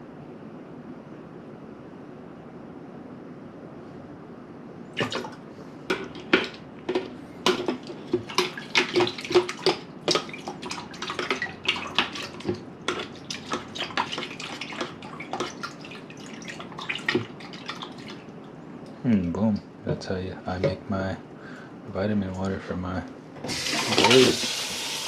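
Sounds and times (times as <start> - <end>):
water sloshing in a cup: 5.0 - 18.6, 23.5 - 24.6.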